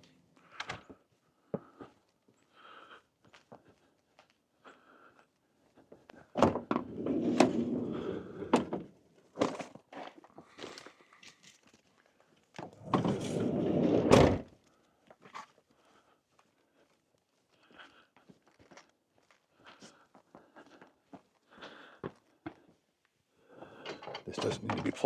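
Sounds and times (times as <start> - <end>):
sliding door rolling along track: 6.9 - 8.6, 12.8 - 14.4.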